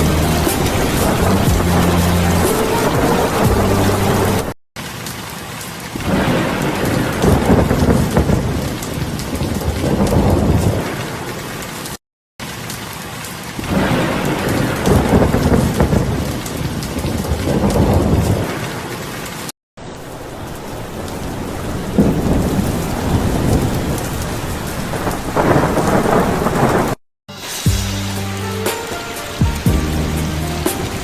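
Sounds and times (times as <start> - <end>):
thunder rumbling: 0.0 - 4.6, 6.0 - 11.4, 13.6 - 18.9, 19.9 - 27.0
heavy rain pouring: 0.0 - 27.0, 27.9 - 31.0.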